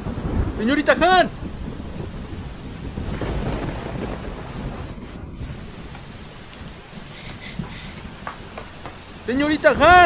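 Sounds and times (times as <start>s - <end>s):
heavy rain falling: 0.0s - 10.0s
low rumble of thunder: 0.0s - 10.0s.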